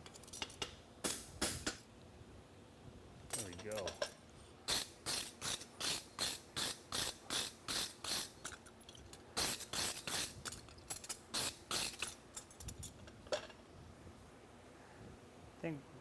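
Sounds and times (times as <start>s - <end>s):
rasp filing steel horseshoe: 9.4s - 12.5s.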